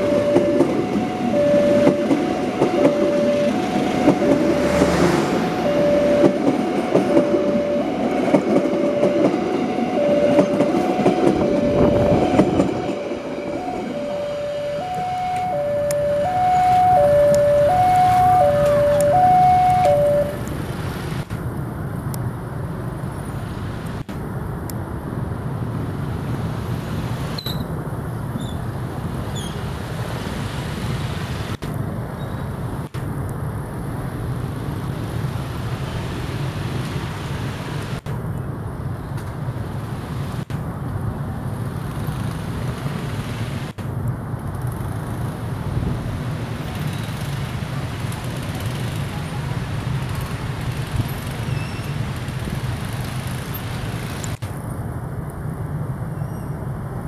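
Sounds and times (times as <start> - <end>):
train rumbling over points: 0.0 - 21.3
two-tone train horn: 10.0 - 20.4.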